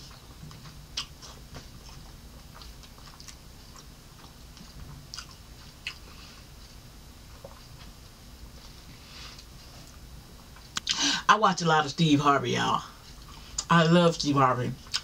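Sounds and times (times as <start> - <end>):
person chewing fries: 0.0 - 8.0, 14.8 - 15.0.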